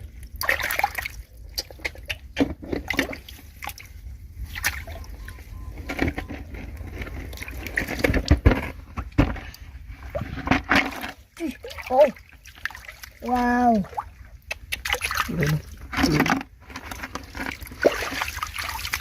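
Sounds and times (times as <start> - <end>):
water sloshing and splashing: 0.0 - 19.0.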